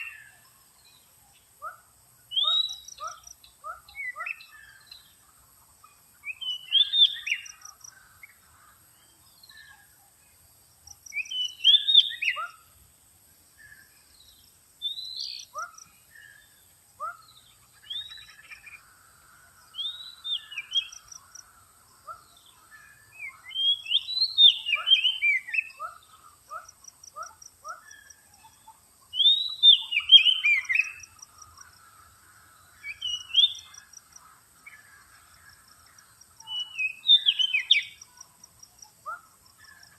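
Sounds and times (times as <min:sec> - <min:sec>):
bird singing whistled notes: 0:00.0 - 0:01.0, 0:02.3 - 0:05.1, 0:06.2 - 0:07.9, 0:10.9 - 0:12.7, 0:13.6 - 0:18.8, 0:19.7 - 0:21.2, 0:22.1 - 0:26.2, 0:27.7 - 0:31.6, 0:32.8 - 0:33.8, 0:36.4 - 0:38.2.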